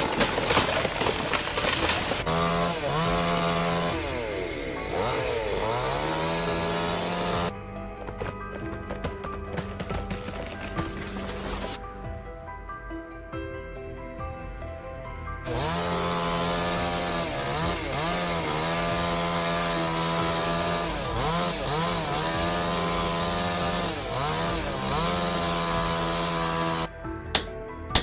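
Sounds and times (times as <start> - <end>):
chainsaw cutting at high revs: 0.0 - 7.5, 15.5 - 26.9
background music: 0.0 - 28.0.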